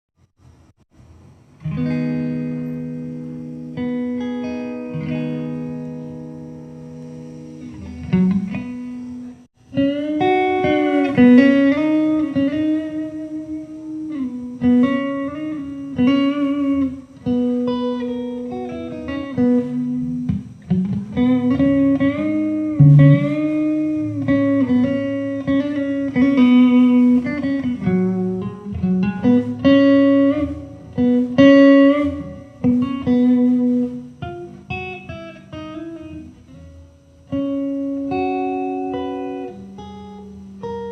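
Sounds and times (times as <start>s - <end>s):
solo guitar melody: 1.6s - 40.9s.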